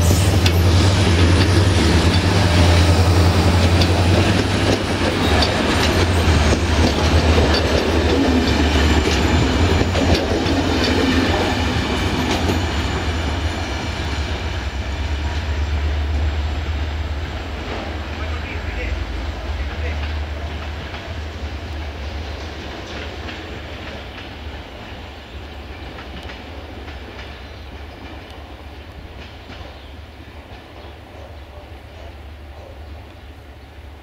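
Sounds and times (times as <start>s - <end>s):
train low hum: 0.0s - 34.0s
wheels clicking over rail joints: 0.3s - 13.0s, 19.5s - 32.8s.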